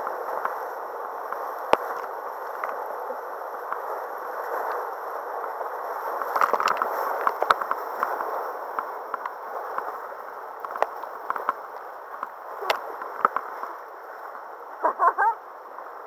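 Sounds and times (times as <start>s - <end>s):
river water rushing and gurgling: 0.0s - 16.0s
sharp splashes and knocks: 6.3s - 8.2s.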